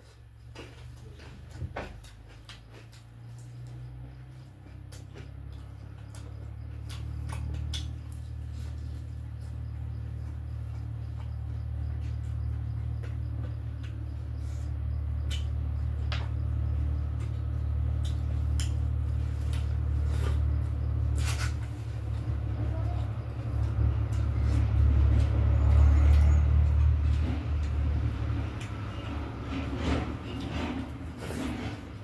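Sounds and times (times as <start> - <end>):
chewing food: 0.0 - 28.9
steady low hum: 0.0 - 32.0.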